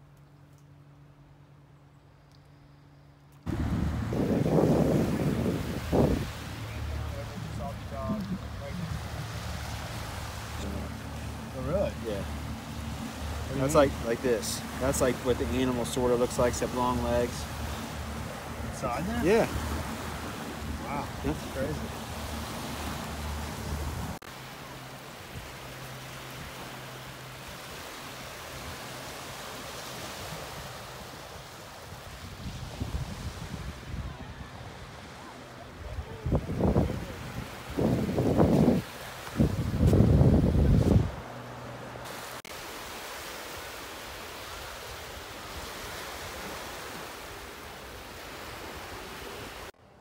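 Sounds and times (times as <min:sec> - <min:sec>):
low hum: 0:00.0 - 0:24.8
steady rushing outdoor noise: 0:03.3 - 0:50.0
steady rushing noise: 0:03.5 - 0:24.5.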